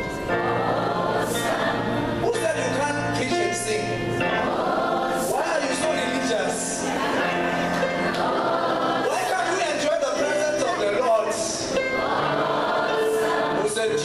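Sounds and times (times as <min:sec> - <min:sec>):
choir singing gospel music: 0:00.0 - 0:14.0.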